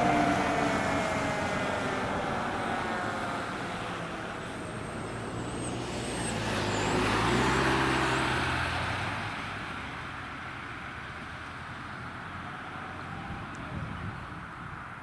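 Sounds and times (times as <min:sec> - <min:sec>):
vehicle driving past: 0:00.0 - 0:10.0.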